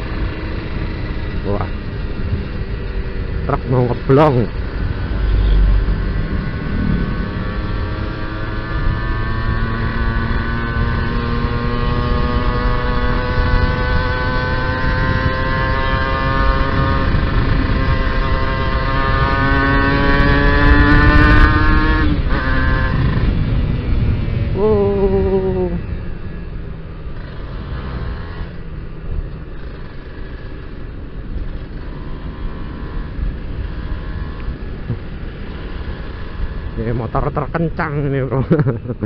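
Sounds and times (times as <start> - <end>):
wind on microphone: 4.5 - 26.2.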